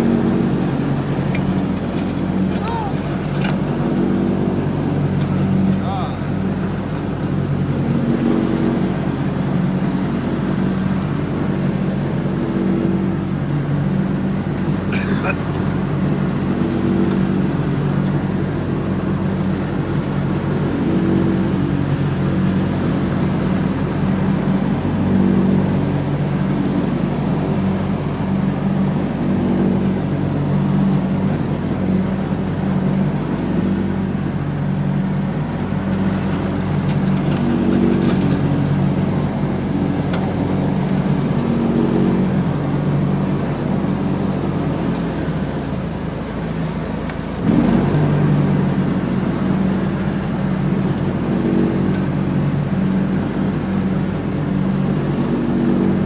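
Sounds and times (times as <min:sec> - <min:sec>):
lawn tractor engine running: 0:00.0 - 0:06.0, 0:33.2 - 0:54.7.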